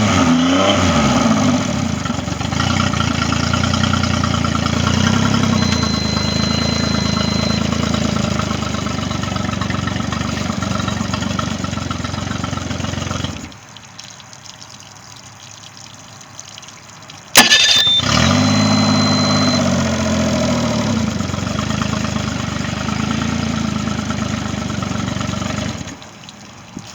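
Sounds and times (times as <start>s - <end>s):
outboard motor running: 0.8s - 13.6s, 17.3s - 26.1s
sharp starter click: 5.2s - 7.7s, 17.4s - 19.6s.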